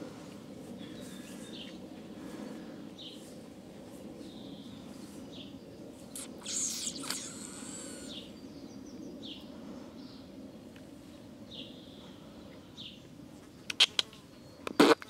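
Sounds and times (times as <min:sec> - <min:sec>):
low background hum: 0:00.0 - 0:14.8
bird short high chirp: 0:06.2 - 0:08.3
gliding bird calls: 0:06.2 - 0:08.5.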